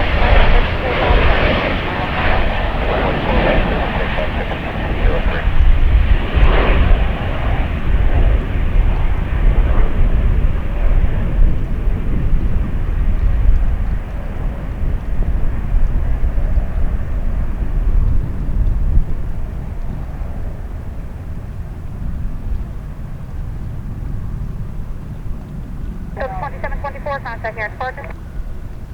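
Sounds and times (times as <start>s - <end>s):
jet airliner rumble: 0.0s - 28.9s.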